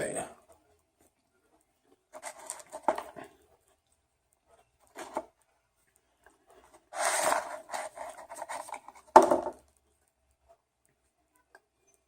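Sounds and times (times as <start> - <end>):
food rubbing and scraping: 1.5 - 3.9, 6.4 - 9.2.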